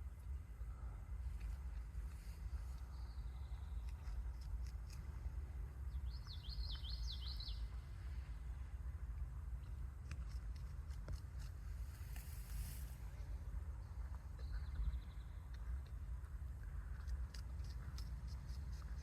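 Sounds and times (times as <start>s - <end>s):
low outdoor rumble: 0.0s - 19.0s
small bird singing: 5.9s - 7.7s, 13.8s - 15.9s.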